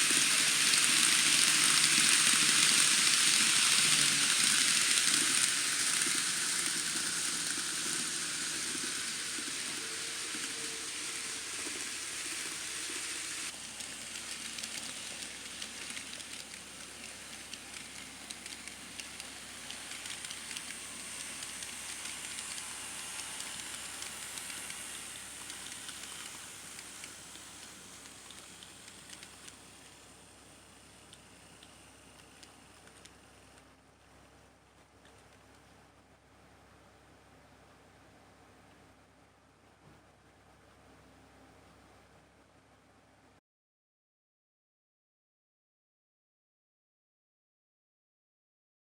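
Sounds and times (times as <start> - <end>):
model train rolling on track: 0.0 - 33.2.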